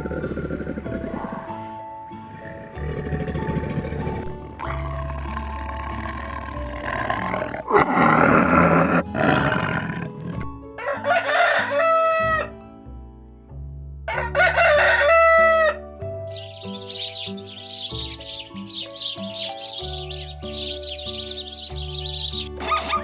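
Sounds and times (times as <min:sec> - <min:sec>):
background music: 0:00.0 - 0:23.0.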